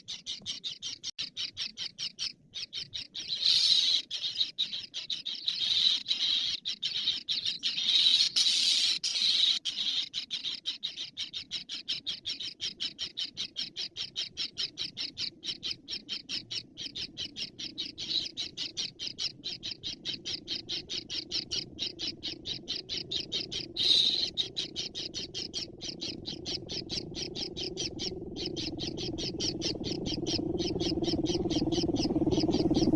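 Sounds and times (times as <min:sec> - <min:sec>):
bird chirping: 0:00.0 - 0:32.9
bird squawks: 0:00.0 - 0:32.9
low hum: 0:24.9 - 0:32.9.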